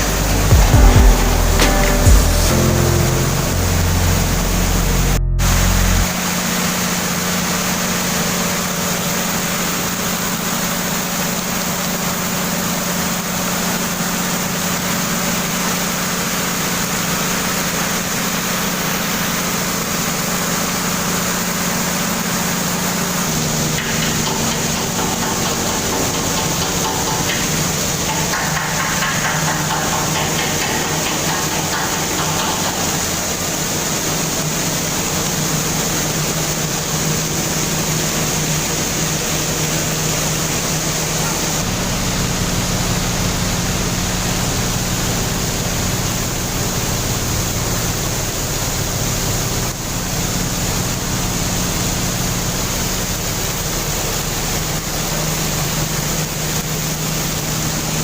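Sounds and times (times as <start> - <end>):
rushing noise: 0.0 - 7.4, 21.0 - 43.1
ferry machinery drone: 0.0 - 58.0.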